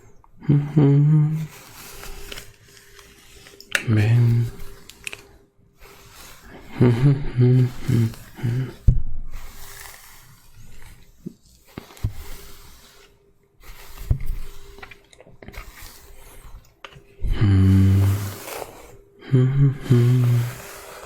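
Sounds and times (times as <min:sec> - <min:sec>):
man humming low notes: 0:00.4 - 0:01.5, 0:06.6 - 0:09.0, 0:17.2 - 0:18.4, 0:19.2 - 0:20.7
soft scratchy rustling: 0:01.4 - 0:19.1, 0:19.9 - 0:21.0.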